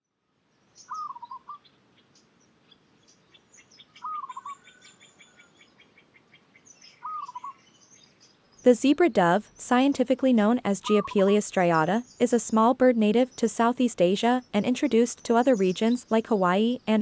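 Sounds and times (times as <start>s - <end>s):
small birds chirping: 0.5s - 17.0s
dove cooing: 0.9s - 1.6s, 4.0s - 4.9s, 7.0s - 7.6s.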